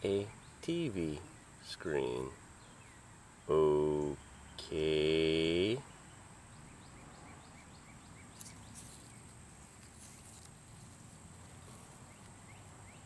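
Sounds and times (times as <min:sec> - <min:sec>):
steady high hiss: 0:00.0 - 0:06.7, 0:07.6 - 0:13.0
bird chirping: 0:00.0 - 0:13.0
faint rustles: 0:08.3 - 0:12.8.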